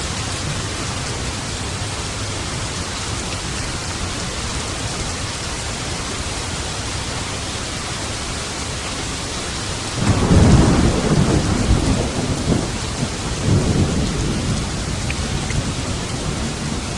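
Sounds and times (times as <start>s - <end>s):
heavy rain: 0.0s - 16.9s
thunder rumbling: 10.0s - 16.9s.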